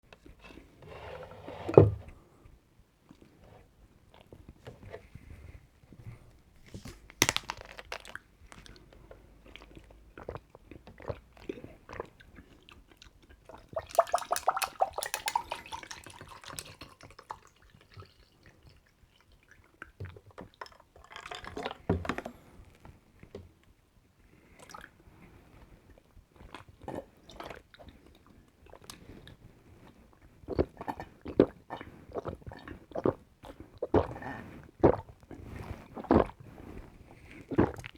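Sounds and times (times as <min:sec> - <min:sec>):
container handling clicks: 0:06.9 - 0:08.2
sipping and swallowing: 0:07.2 - 0:17.0, 0:30.5 - 0:36.4, 0:37.4 - 0:37.9
soda pouring: 0:13.7 - 0:18.2.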